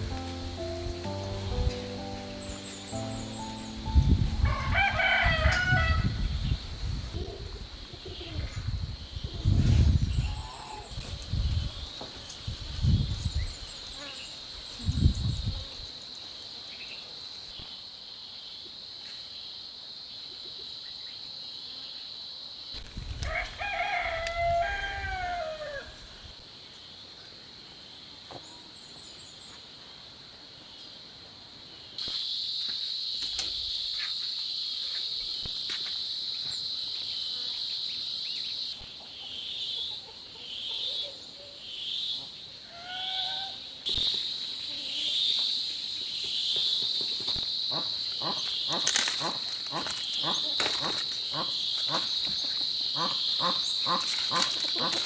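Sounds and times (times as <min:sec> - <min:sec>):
high insect drone: 0:00.0 - 0:39.9, 0:41.6 - 0:55.0
rooster crowing: 0:04.4 - 0:06.2, 0:23.2 - 0:26.0.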